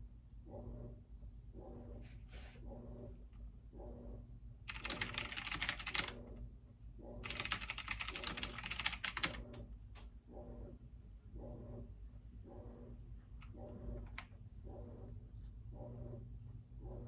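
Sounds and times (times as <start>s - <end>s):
steady low hum: 0.0s - 17.0s
keyboard typing: 4.7s - 6.2s, 7.2s - 9.5s.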